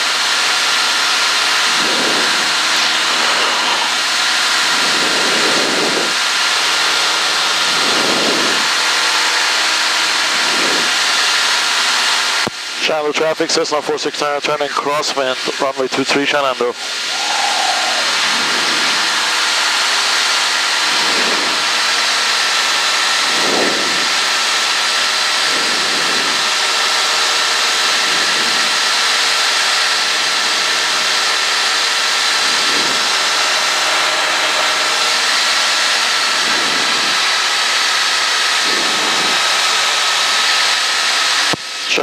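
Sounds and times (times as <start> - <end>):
aircraft engine and propeller droning: 0.0 - 42.0.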